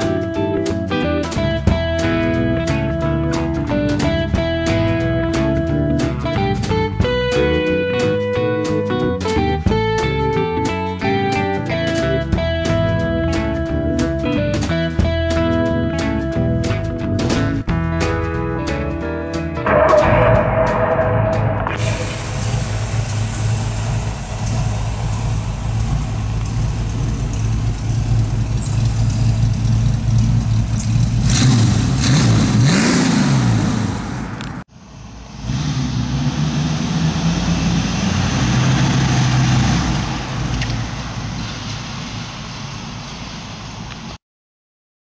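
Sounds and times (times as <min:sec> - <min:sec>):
engine idling and revving: 0:00.0 - 0:07.7, 0:19.6 - 0:41.6.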